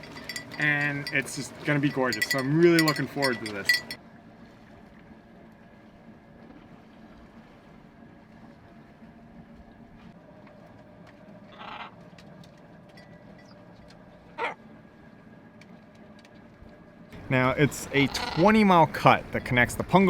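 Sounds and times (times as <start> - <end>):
short calls: 17.8 - 18.6.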